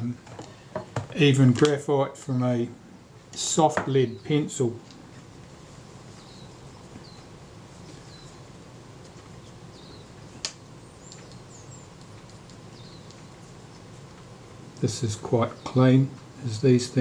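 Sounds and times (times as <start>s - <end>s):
low room hum: 0.0s - 17.0s
faint bird chirps: 6.1s - 8.5s, 9.4s - 10.2s, 10.8s - 13.5s.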